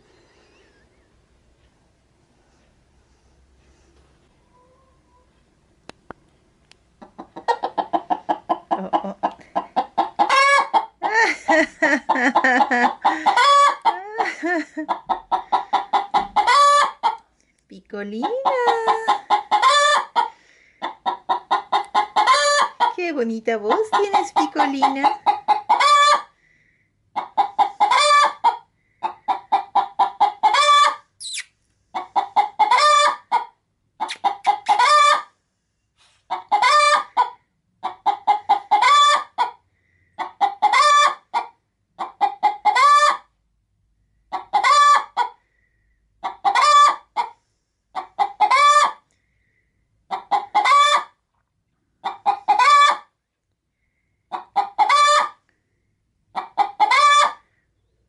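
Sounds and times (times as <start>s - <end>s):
hen cackling: 7.0s - 17.2s, 18.2s - 23.0s, 23.7s - 26.4s, 27.1s - 35.4s, 36.3s - 39.6s, 40.2s - 43.4s, 44.2s - 45.5s, 46.2s - 49.0s, 50.1s - 51.2s, 52.0s - 53.2s, 54.3s - 55.4s, 56.3s - 57.5s.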